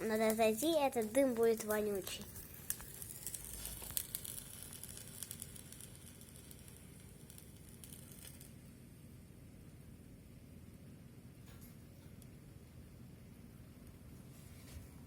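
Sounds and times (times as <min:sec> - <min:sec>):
chemical reaction crackling and sizzling: 0:00.0 - 0:09.4.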